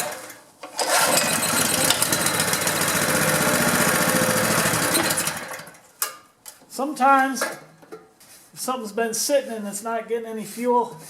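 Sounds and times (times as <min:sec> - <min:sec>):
small engine running: 0:00.8 - 0:05.8.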